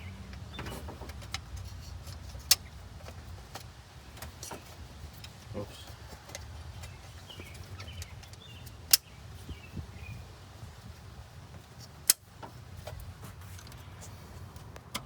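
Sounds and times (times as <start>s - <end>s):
low steady rumble: 0.0s - 11.8s.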